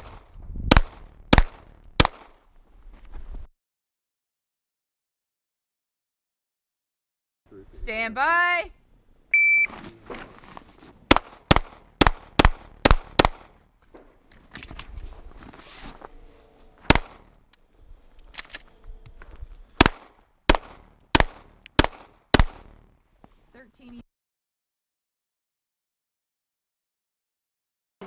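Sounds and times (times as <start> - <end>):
pistol shots: 0.0 - 2.4, 11.1 - 13.6, 16.9 - 17.3, 19.8 - 22.8
shot timer beep: 9.3 - 9.7.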